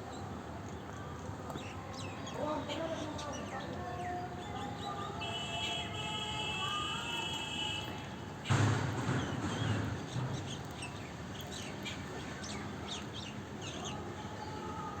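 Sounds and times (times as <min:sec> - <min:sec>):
small birds chirping: 0:09.1 - 0:14.0.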